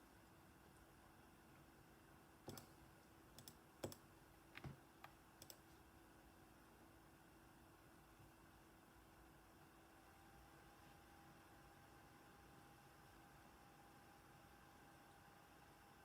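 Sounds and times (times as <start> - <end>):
steady faint hum: 0.0 - 16.0
faint sharp clicks and taps: 2.4 - 5.8.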